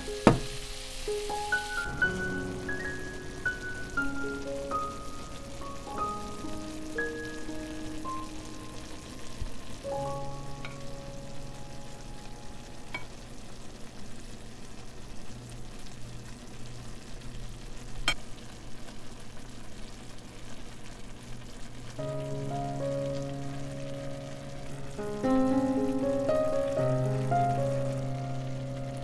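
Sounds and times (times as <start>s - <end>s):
soft background music: 0.0s - 13.3s, 22.0s - 29.0s
vegetables sizzling in a pan: 0.0s - 29.0s.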